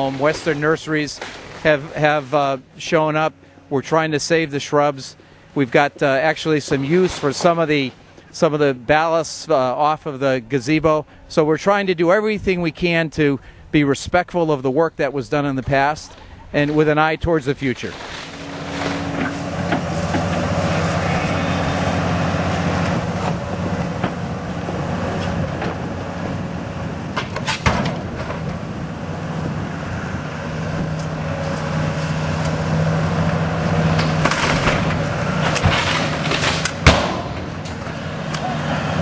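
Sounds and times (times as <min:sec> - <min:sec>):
structure cracking and crunching: 0:00.0 - 0:02.3, 0:33.2 - 0:38.0
demolition machine engine running: 0:00.0 - 0:09.5, 0:16.1 - 0:39.0.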